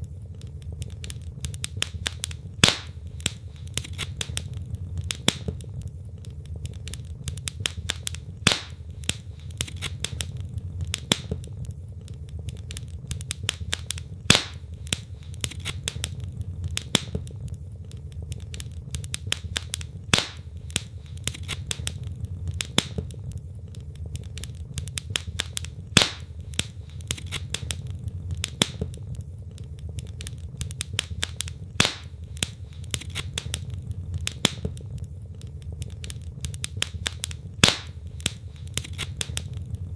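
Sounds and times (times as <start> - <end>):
burning log popping: 0.0 - 39.9
low rumble of flames: 0.0 - 39.9
wood fire crackling: 0.0 - 39.9.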